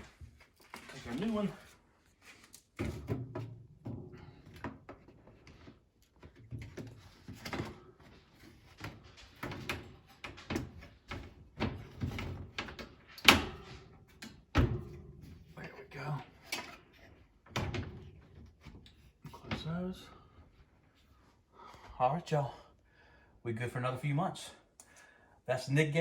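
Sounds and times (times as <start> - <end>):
air filter rustling and scraping: 0.0 - 21.2.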